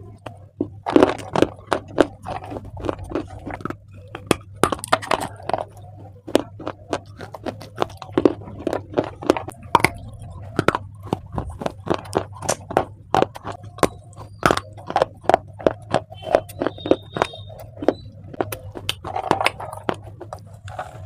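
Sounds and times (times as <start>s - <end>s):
crunchy chewing: 0.0s - 21.0s
low steady hum: 0.0s - 21.0s.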